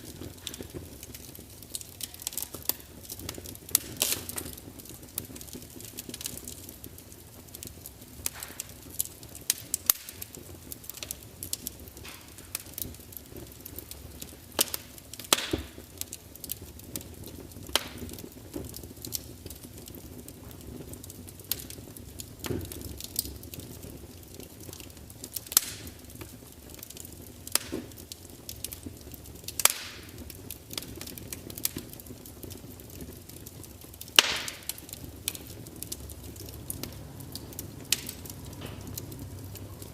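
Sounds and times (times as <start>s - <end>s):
fire hissing: 0.0s - 39.9s
wood fire crackling and popping: 0.0s - 39.9s.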